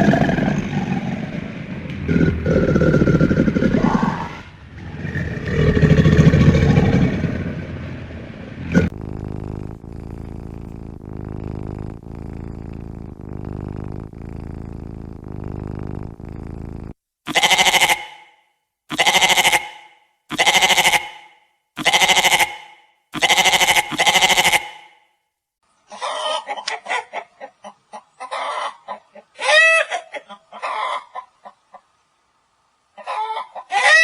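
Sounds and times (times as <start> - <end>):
loud low sound: 0.0 - 16.4
soft pulsing sound: 8.7 - 17.0
sheep bleating: 17.3 - 18.2, 18.9 - 21.2, 21.8 - 22.6, 23.2 - 24.9.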